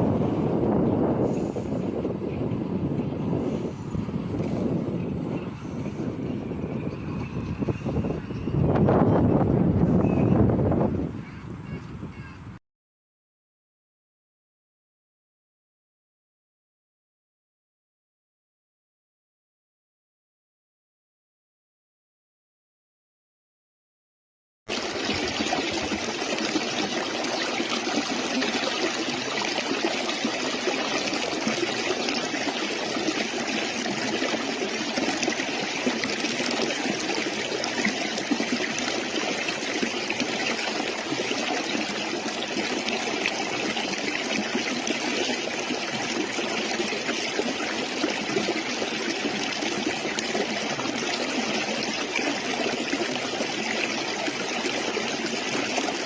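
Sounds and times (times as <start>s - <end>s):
stream water flowing: 24.7s - 56.0s.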